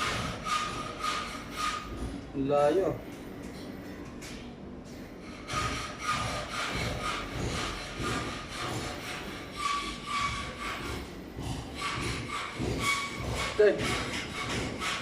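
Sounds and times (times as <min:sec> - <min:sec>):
hand saw strokes: 0:00.0 - 0:02.0, 0:05.2 - 0:15.0.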